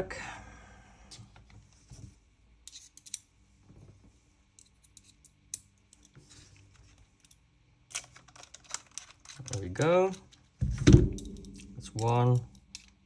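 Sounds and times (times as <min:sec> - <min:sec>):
clicks and taps of metal parts: 0:07.2 - 0:13.0.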